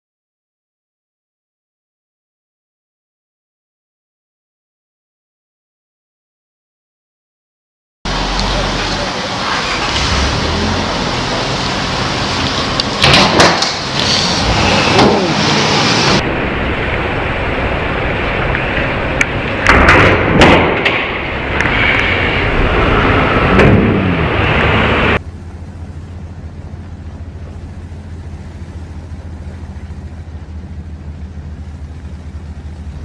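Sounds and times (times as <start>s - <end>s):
car road and engine noise: 8.1s - 33.0s
car collision bangs: 12.9s - 15.4s.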